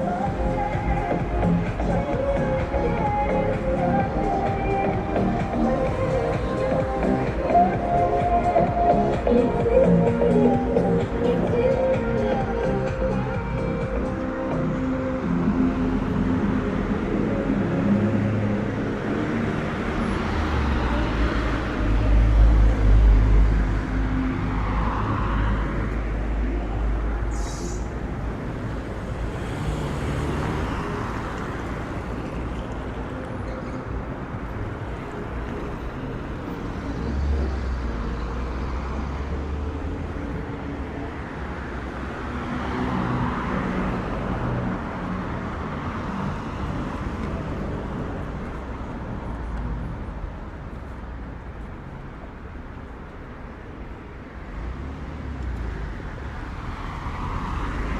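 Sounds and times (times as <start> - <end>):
vehicles passing: 0.0 - 57.9
brief high hiss: 27.3 - 27.9.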